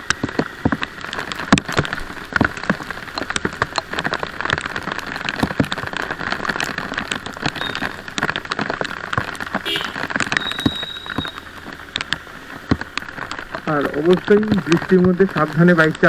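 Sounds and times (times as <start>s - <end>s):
rain falling: 0.0s - 16.0s
raindrop taps near microphone: 0.0s - 16.0s.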